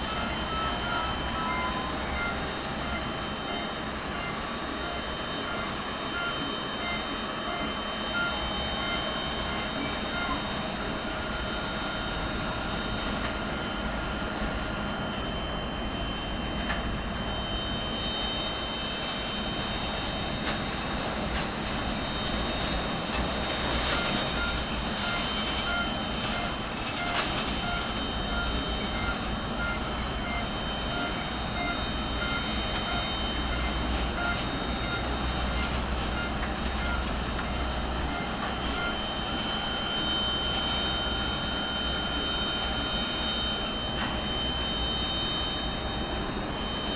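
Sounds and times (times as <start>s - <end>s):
regular beeping: 0.0s - 10.9s
steady high tones: 0.0s - 14.9s, 23.9s - 46.9s
jet engines whining: 0.0s - 46.9s.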